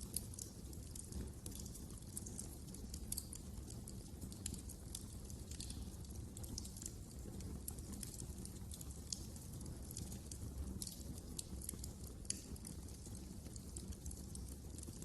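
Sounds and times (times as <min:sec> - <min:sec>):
low rumble of burning logs: 0:00.0 - 0:15.0
wood fire crackling: 0:00.0 - 0:15.0.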